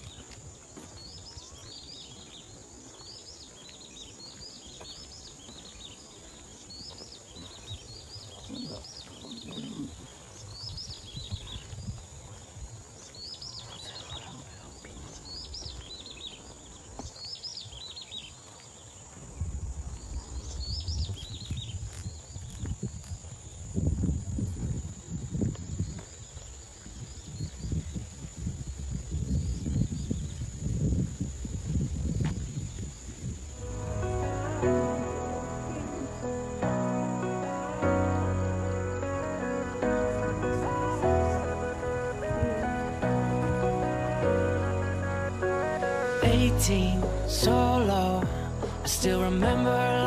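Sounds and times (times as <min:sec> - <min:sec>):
small birds chirping: 0:00.0 - 0:44.4
low rumble: 0:33.5 - 0:50.0
high-pitched drone: 0:33.6 - 0:50.0.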